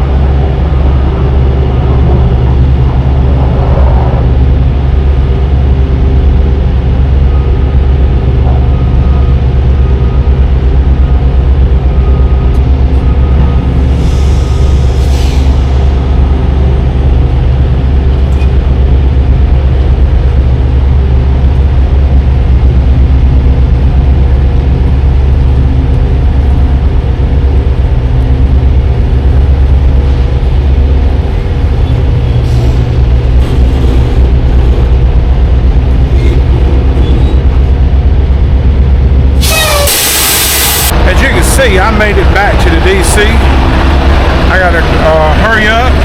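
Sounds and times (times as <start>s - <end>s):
truck diesel engine droning: 0.0s - 46.0s
air hiss: 39.4s - 40.9s.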